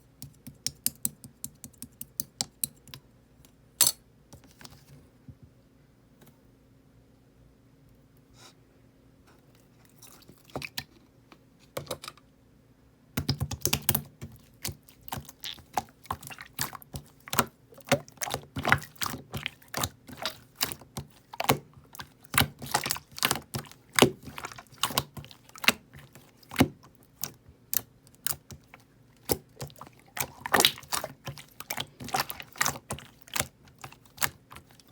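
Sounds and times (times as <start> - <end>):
slime clicking and popping: 13.2 - 34.8.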